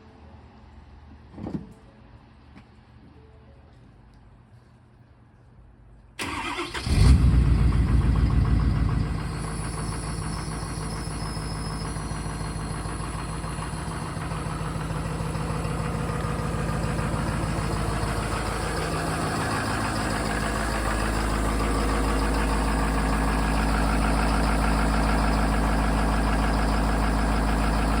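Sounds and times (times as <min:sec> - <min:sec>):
diesel engine starting and idling: 0:06.2 - 0:28.0.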